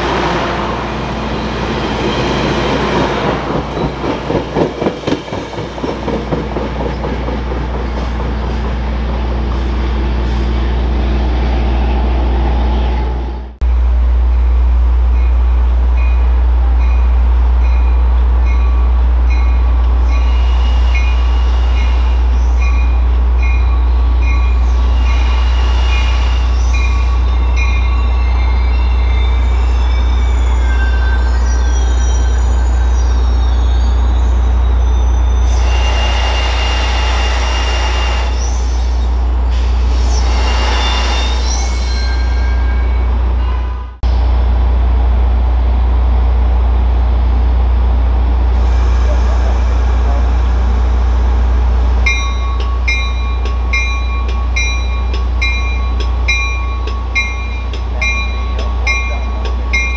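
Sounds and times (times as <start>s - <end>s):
train rumbling: 0.0s - 59.9s
metallic wheel squeals: 20.0s - 36.7s, 39.9s - 43.9s
bell ringing: 52.1s - 59.9s.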